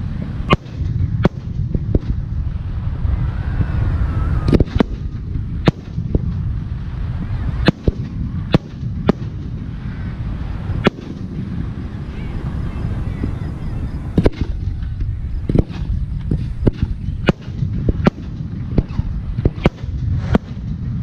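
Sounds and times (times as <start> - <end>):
low rumble: 0.0 - 21.0
firework shells bursting: 4.5 - 6.6, 14.2 - 21.0.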